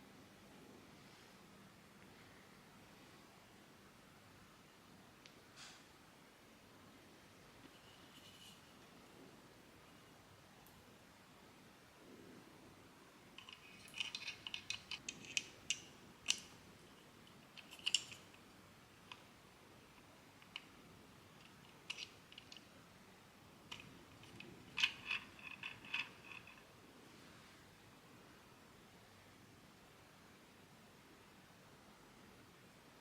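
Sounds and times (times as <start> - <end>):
plastic parts clicking: 13.4 - 16.5, 17.3 - 18.4, 21.4 - 22.7, 23.7 - 26.6.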